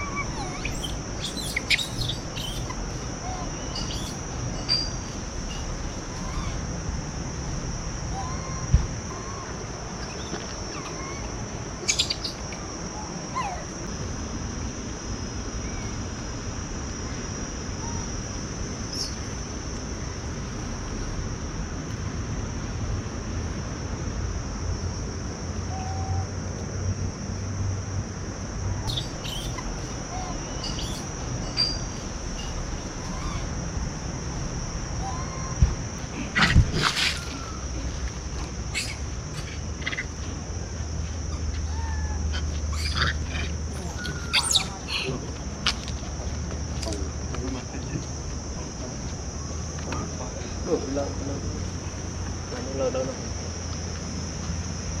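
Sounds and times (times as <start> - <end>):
bird chirps and calls: 0.0 - 6.6, 10.1 - 12.6, 28.9 - 33.5, 38.7 - 40.2, 41.7 - 45.2
high-pitched insect drone: 0.0 - 21.4, 24.2 - 55.0.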